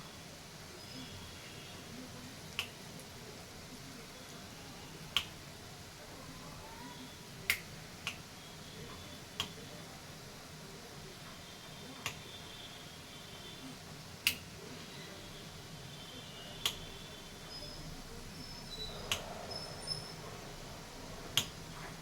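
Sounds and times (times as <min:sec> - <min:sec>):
sharp clicks: 0:19.0 - 0:19.3.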